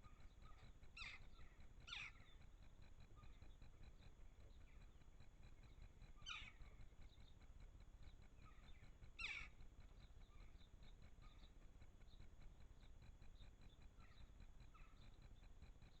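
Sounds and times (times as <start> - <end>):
downward-sweeping bird calls: 0.2 - 2.4, 6.2 - 6.7, 8.4 - 9.6.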